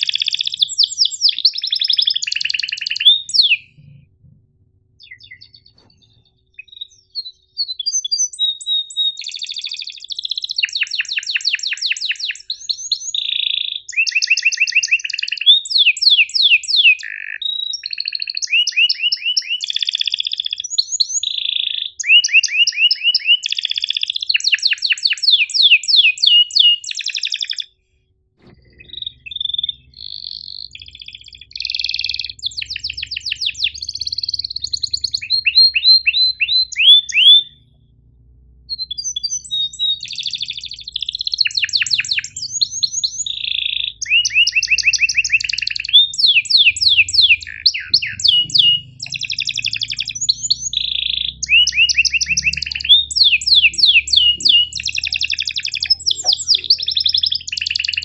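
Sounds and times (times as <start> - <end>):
canary singing: 0.0 - 4.1, 5.0 - 27.8, 28.4 - 58.0
low steady hum: 3.6 - 6.6, 33.7 - 40.9.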